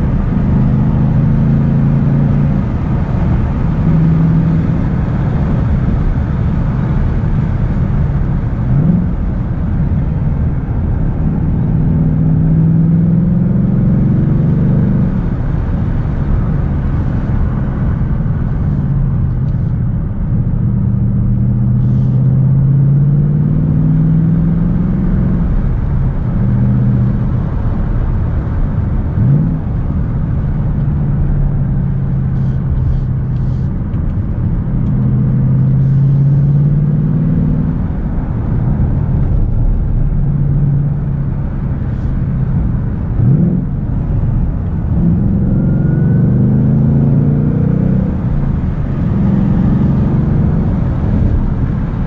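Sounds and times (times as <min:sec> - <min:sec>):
car engine from inside cabin: 0:00.0 - 0:52.0
road rumble: 0:00.0 - 0:52.0.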